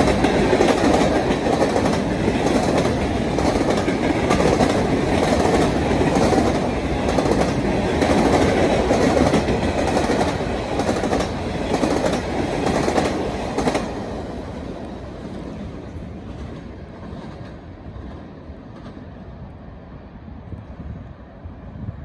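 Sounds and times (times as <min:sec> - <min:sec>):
freight train cars rolling past: 0:00.0 - 0:21.8.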